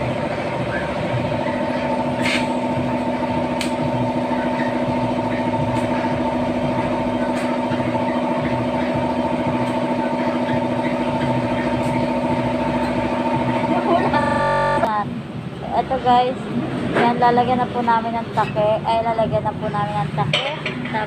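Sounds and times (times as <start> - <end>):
motor drone: 0.0 - 14.9.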